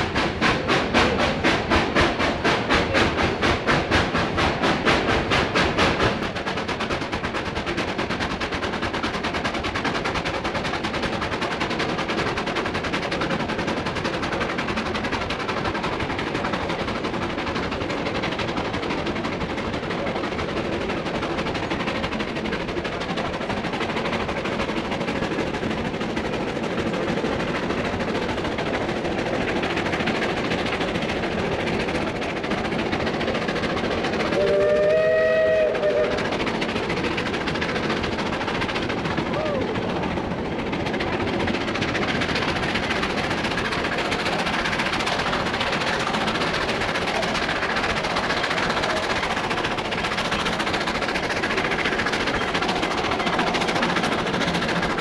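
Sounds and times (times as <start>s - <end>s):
train rumbling and clattering: 0.0s - 55.0s
locomotive whistle: 34.4s - 36.2s.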